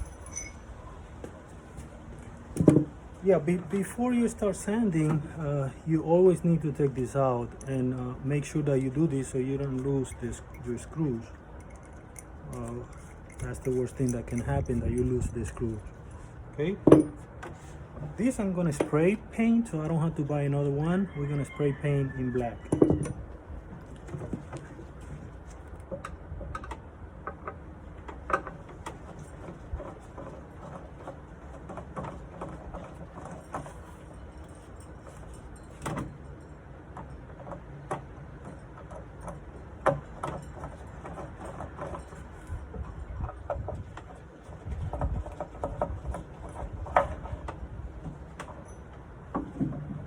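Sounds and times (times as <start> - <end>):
metal hardware clicking and clinking: 0.0 - 0.7, 7.0 - 15.9
low steady background hum: 0.0 - 50.0.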